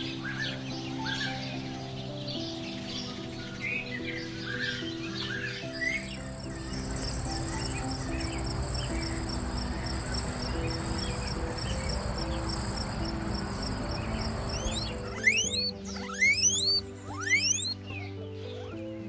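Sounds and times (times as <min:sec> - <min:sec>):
soft background music: 0:00.0 - 0:19.0
insect trilling high-pitched: 0:12.3 - 0:17.8.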